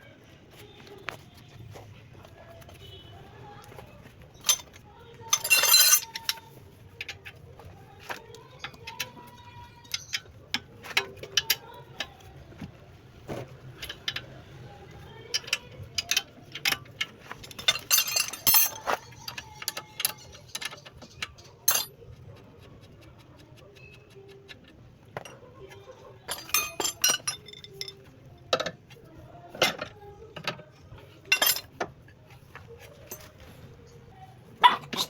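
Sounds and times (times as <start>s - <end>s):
metallic clinks and knocks: 2.6s - 12.3s, 15.0s - 22.0s, 26.3s - 33.6s.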